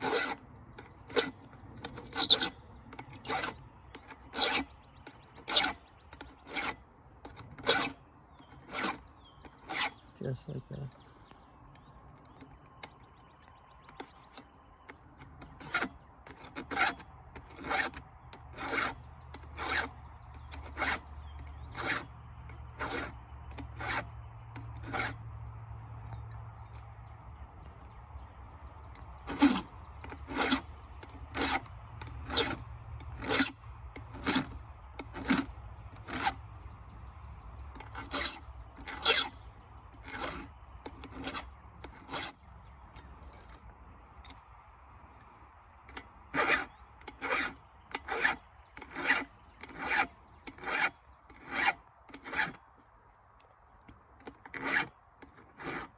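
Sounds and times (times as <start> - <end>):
hand file rasping on chainsaw chain: 0.0 - 10.1, 15.4 - 25.2, 29.2 - 36.4, 37.8 - 39.4, 40.0 - 42.4, 45.9 - 52.6, 54.4 - 55.9.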